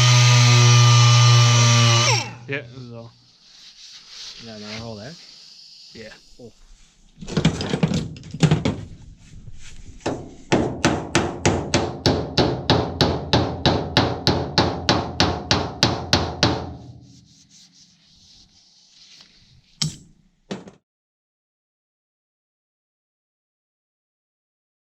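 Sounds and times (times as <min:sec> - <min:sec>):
hammer striking metal: 0:19.8 - 0:20.2.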